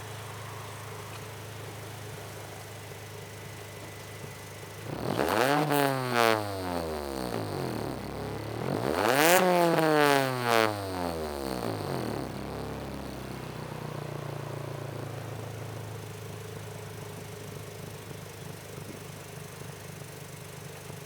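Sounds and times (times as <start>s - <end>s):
car engine revving and idling: 0.0s - 21.0s.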